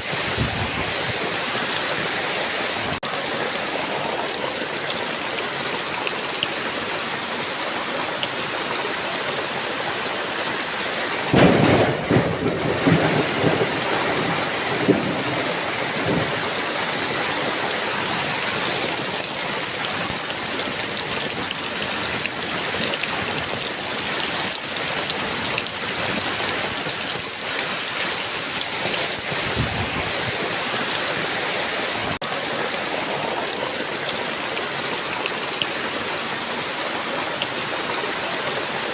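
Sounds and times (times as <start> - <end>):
heavy rain: 0.0 - 38.9
thunder rumbling: 11.3 - 16.7.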